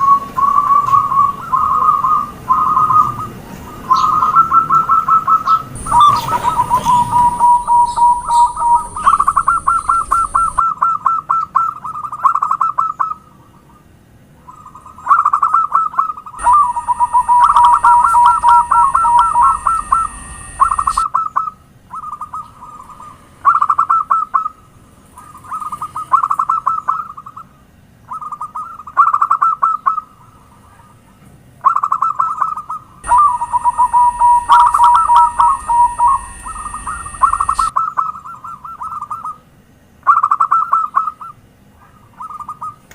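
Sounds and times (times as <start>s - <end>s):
doves cooing: 0.0s - 24.6s, 31.6s - 39.4s.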